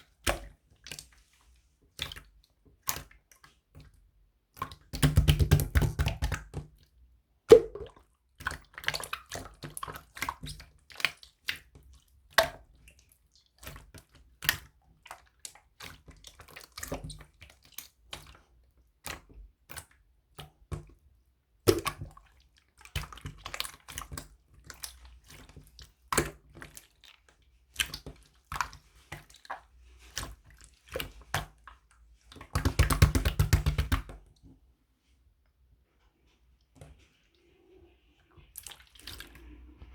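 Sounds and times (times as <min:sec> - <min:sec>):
slime squelching: 0:07.5 - 0:21.0, 0:21.6 - 0:34.4, 0:35.9 - 0:39.9.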